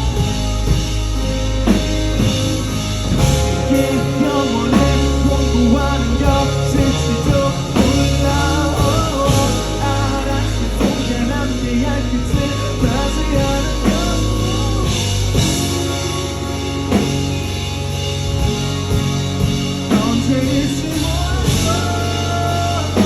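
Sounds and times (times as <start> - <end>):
live rock band playing: 0.0 - 23.0.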